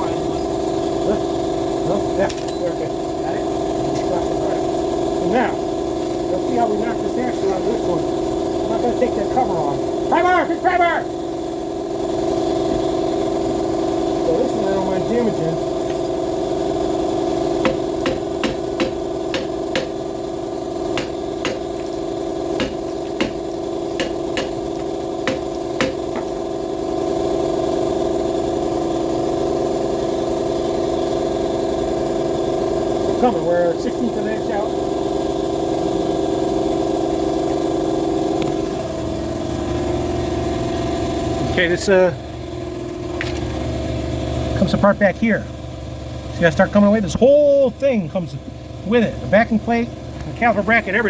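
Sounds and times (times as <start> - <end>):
steady machine hum: 0.0 - 51.0
hammer strikes on metal: 17.6 - 20.0, 20.9 - 21.9, 22.6 - 26.3.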